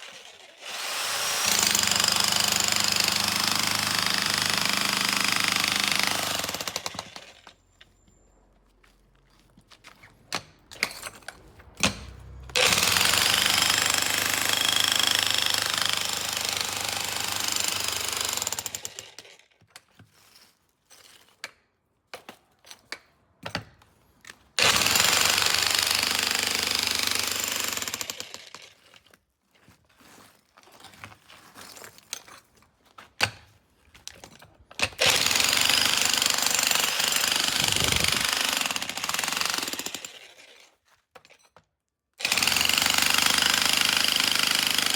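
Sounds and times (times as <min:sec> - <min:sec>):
demolition hammer breaking concrete: 0:01.4 - 0:07.2.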